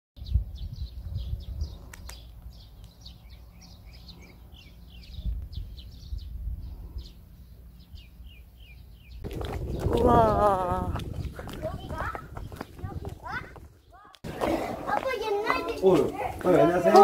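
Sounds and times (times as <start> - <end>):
small birds chirping: 0.2 - 14.4.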